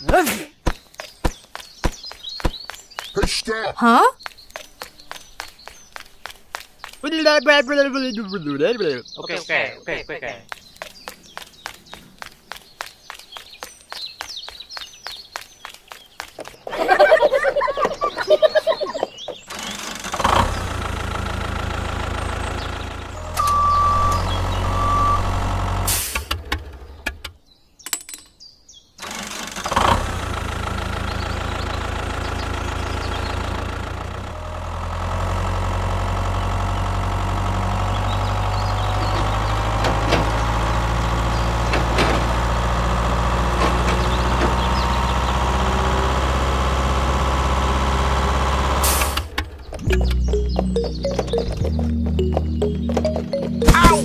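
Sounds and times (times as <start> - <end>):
tractor engine running: 10.6 - 27.4, 29.0 - 54.0
short high beeps: 23.3 - 25.4.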